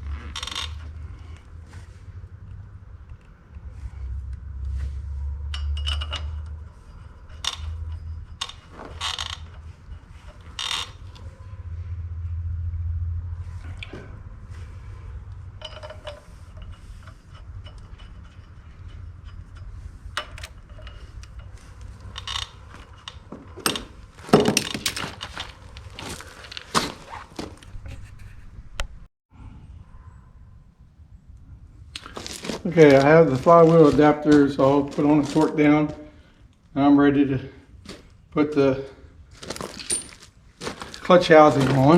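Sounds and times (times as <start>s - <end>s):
bolts clinking against metal: 0.3s - 1.4s, 5.4s - 11.4s, 13.6s - 27.8s, 37.9s - 41.9s.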